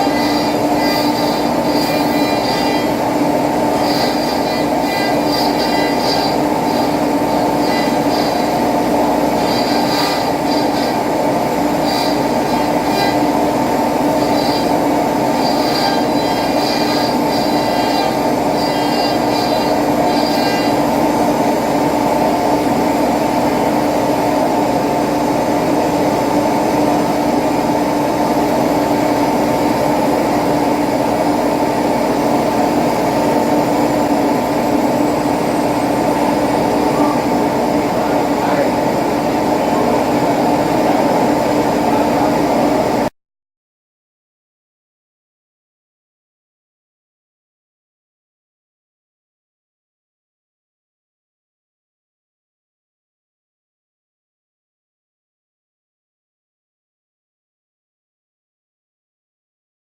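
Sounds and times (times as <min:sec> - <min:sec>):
cnc machine mechanical drone: 0:00.0 - 0:43.1
short high machine whines: 0:00.0 - 0:43.1.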